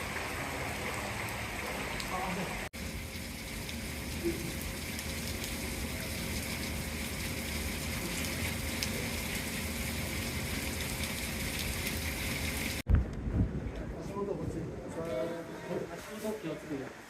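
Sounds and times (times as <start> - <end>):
heavy rain hissing: 0.0 - 12.8.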